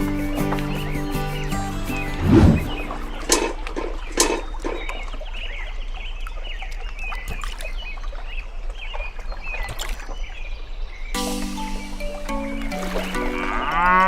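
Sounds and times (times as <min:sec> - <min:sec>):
birds chirping: 0:00.0 - 0:14.0
sharp knocks: 0:03.3 - 0:05.0.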